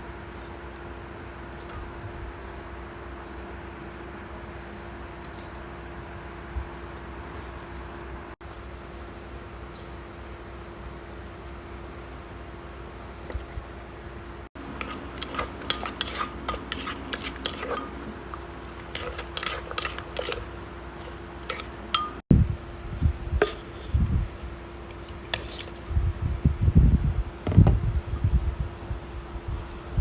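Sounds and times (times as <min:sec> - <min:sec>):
dishes and utensils clinking: 0:14.7 - 0:18.1, 0:18.7 - 0:22.2
dull low thumps: 0:26.0 - 0:29.0.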